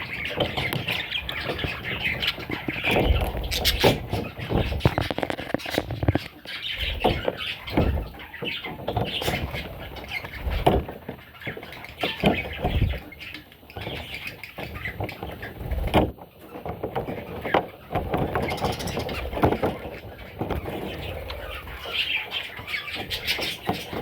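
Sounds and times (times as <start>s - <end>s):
parrot chicks squawking: 0.0s - 24.0s
short knocks and bumps: 0.4s - 8.2s.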